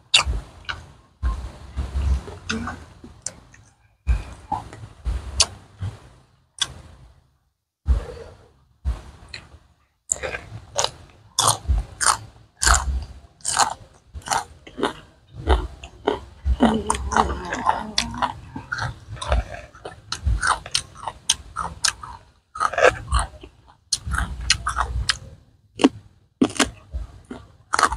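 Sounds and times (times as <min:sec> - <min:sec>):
crunchy chewing of raw vegetables: 0:10.1 - 0:27.9.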